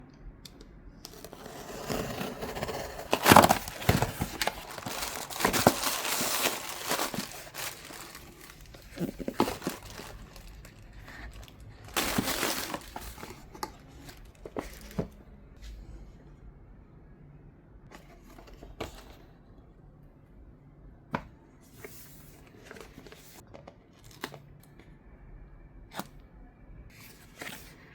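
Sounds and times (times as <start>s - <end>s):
packaging rustling and ripping: 1.1s - 15.0s.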